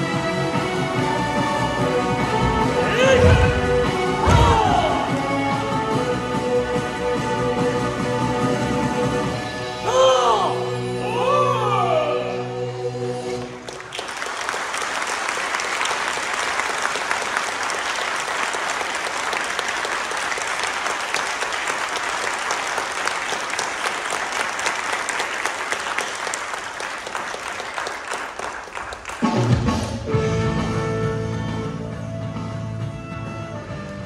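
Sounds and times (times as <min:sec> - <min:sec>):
backing music with gliding notes: 0:00.0 - 0:09.8
audience applause: 0:13.4 - 0:29.9.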